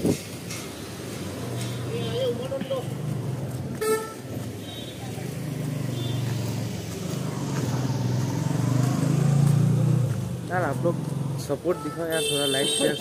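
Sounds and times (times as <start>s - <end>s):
car engine humming: 5.1s - 11.7s.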